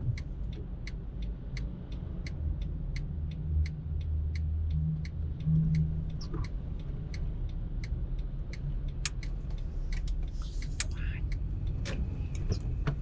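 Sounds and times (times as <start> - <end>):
turn signal ticking: 0.0 - 13.0
car cabin rumble: 9.0 - 13.0.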